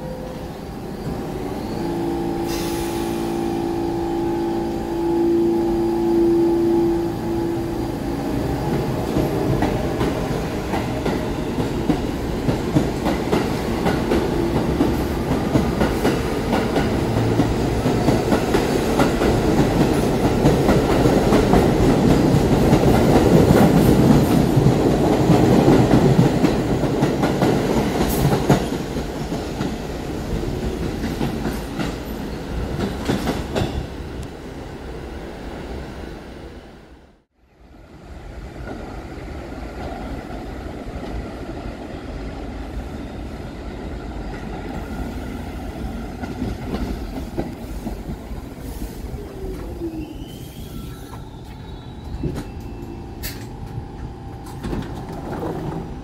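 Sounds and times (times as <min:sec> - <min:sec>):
train wheels clickety-clack: 0:08.7 - 0:33.9, 0:46.2 - 0:48.8, 0:52.0 - 0:56.0.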